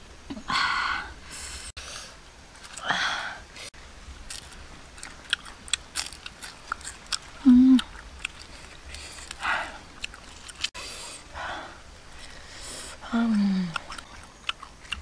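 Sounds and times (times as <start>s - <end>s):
crunchy chewing: 4.2s - 11.3s, 12.1s - 15.0s
person humming: 7.4s - 7.9s, 13.0s - 13.8s
breathy exhales: 8.5s - 9.9s, 10.8s - 13.7s.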